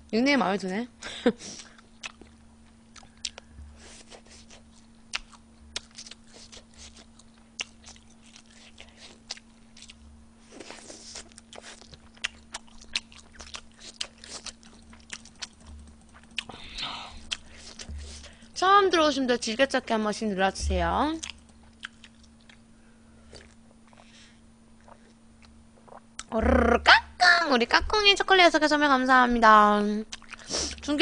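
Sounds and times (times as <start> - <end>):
steady low hum: 0.0 - 31.0
wet chewing and mouth clicks: 1.6 - 18.5, 21.1 - 26.4, 30.1 - 30.5.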